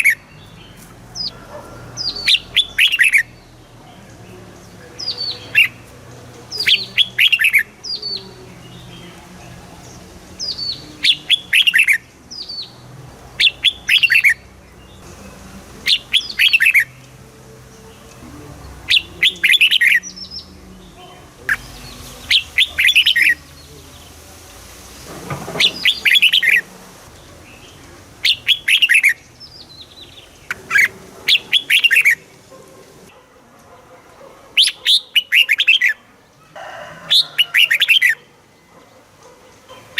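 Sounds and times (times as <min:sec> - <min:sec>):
bulbul singing whistled notes: 0:02.0 - 0:03.6, 0:04.7 - 0:12.8, 0:13.4 - 0:18.2, 0:18.8 - 0:24.2, 0:25.6 - 0:32.4.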